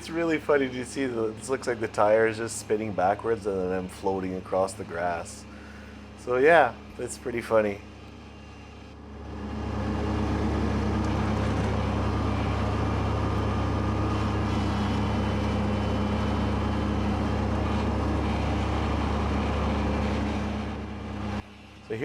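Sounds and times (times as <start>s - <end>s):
tractor diesel engine and mower: 0.0s - 22.0s.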